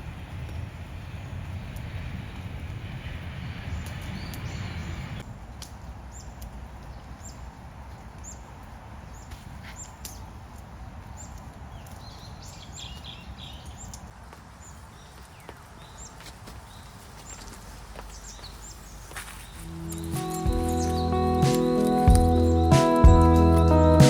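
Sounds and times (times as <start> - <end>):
small bird chirping: 14.6 - 23.7
steady rushing background: 19.5 - 24.0.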